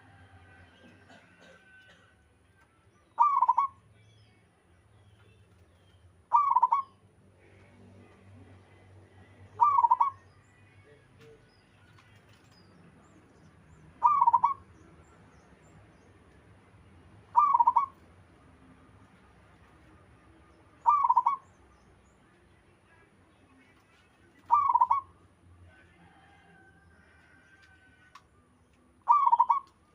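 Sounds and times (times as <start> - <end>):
dove cooing: 3.2 - 3.8, 6.3 - 6.9, 9.5 - 10.2, 14.0 - 14.6, 17.3 - 18.0, 20.8 - 21.4, 24.4 - 25.1, 29.1 - 29.7.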